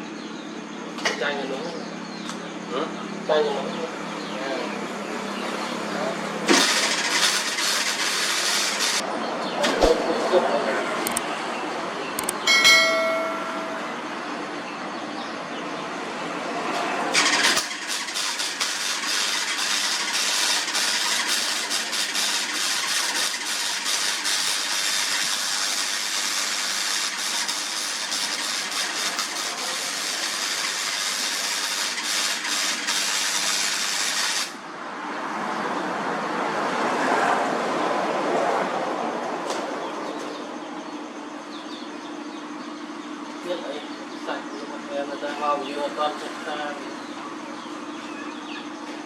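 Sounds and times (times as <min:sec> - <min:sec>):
welding arc crackling: 0:17.2 - 0:34.6.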